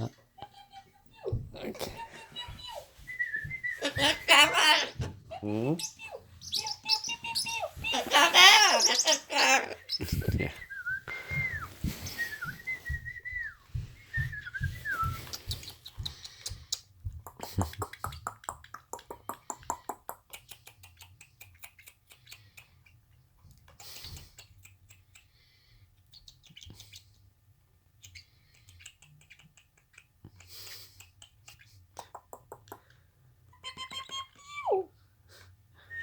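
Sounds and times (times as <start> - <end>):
cockatoo whistling: 2.4 - 5.0, 5.8 - 15.6.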